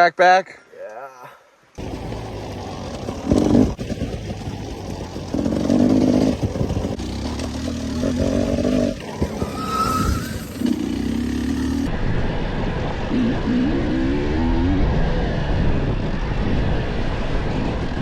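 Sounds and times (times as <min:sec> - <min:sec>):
dirt bike engine revving: 0:01.8 - 0:11.9.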